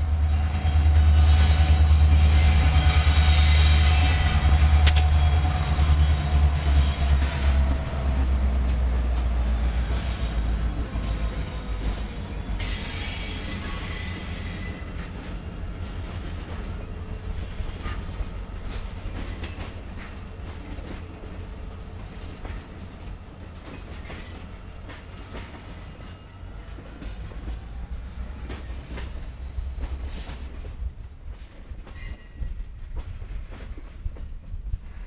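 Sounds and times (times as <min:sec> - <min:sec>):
freight cars rolling on rails: 0:00.0 - 0:34.8
diesel locomotive engine drone: 0:00.0 - 0:35.0.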